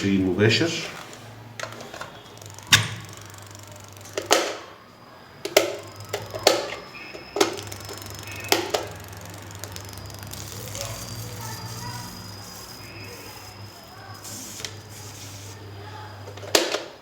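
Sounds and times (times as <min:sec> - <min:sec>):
fan motor humming: 0:00.0 - 0:16.8
sharp clicks and knocks: 0:01.6 - 0:04.7, 0:05.4 - 0:13.8.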